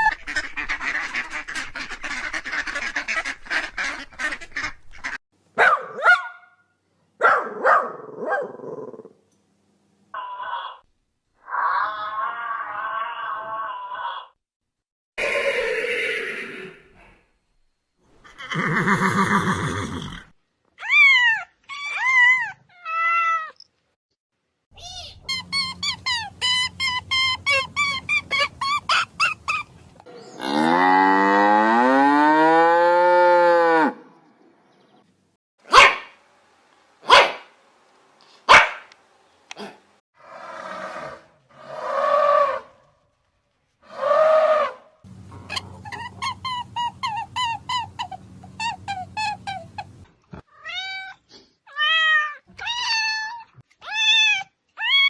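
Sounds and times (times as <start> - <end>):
animal calls: 25.1 - 30.7, 43.9 - 50.1.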